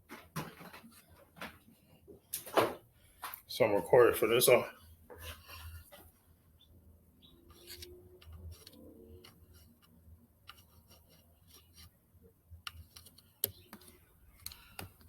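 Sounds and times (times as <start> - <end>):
faint scattered clicks: 12.6 - 15.0.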